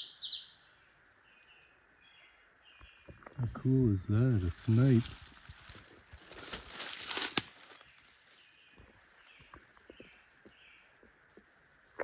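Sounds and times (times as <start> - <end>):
rustling and crackling in brush: 4.1 - 12.0
twigs snapping: 4.6 - 8.4.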